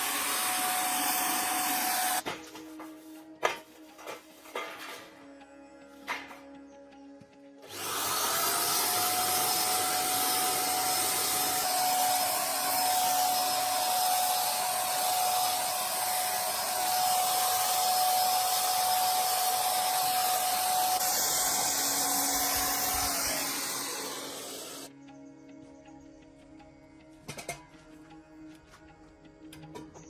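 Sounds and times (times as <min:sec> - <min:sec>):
electric motor whining: 0:00.0 - 0:02.2, 0:07.6 - 0:24.9.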